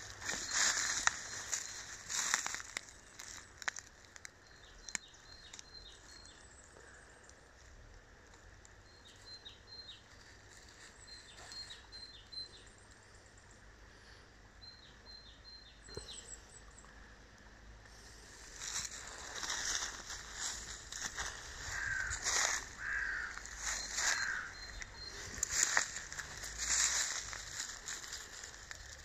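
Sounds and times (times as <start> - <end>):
dry leaves clicking: 0.0 - 9.2, 17.9 - 29.0
songbird chirping: 0.0 - 29.0.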